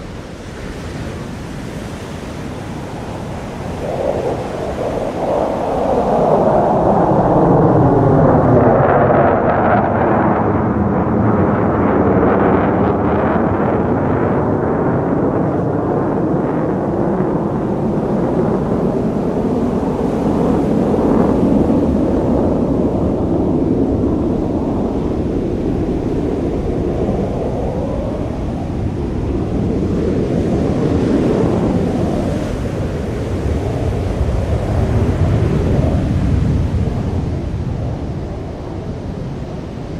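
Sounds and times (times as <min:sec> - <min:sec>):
jet engine rumble: 0:00.0 - 0:39.9.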